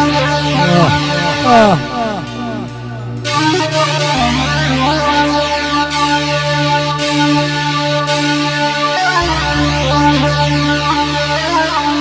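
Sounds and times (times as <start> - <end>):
low drone: 0.0 - 5.5
synthesizer melody: 0.0 - 6.1.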